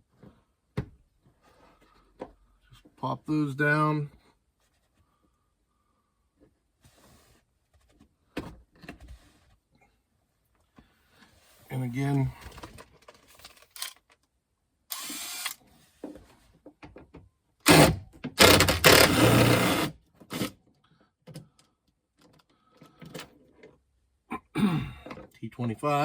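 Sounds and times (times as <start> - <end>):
power screwdriver running: 14.9 - 15.6, 17.7 - 20.5.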